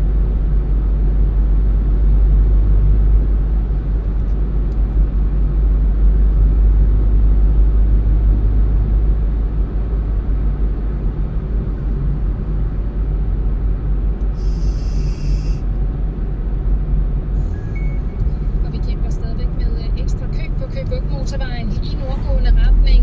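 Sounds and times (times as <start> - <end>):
tyre and engine rumble in car: 0.0 - 23.0
short high-pitched hiss: 14.4 - 15.6.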